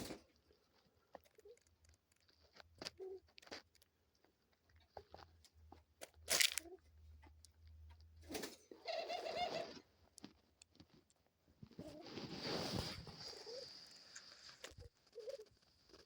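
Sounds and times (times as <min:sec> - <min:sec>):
dove pecking at seeds: 0:00.0 - 0:16.0
dove cooing: 0:08.8 - 0:09.8, 0:13.3 - 0:13.8, 0:14.8 - 0:16.0.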